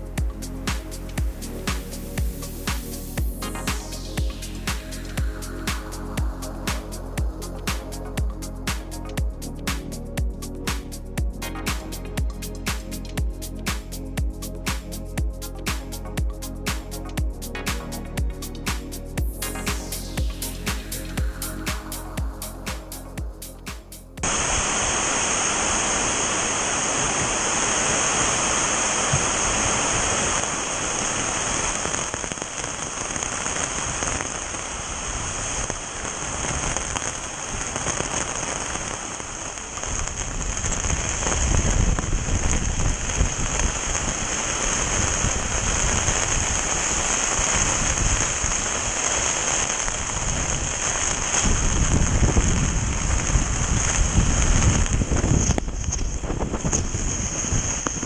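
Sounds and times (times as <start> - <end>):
heavy rain pouring: 24.2 - 55.4.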